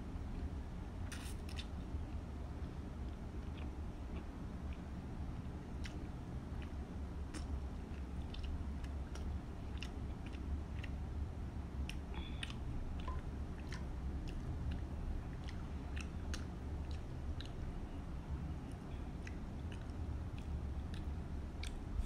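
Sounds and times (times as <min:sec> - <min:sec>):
steady low hum: 0:00.0 - 0:22.0
chewing noodles: 0:05.7 - 0:22.0.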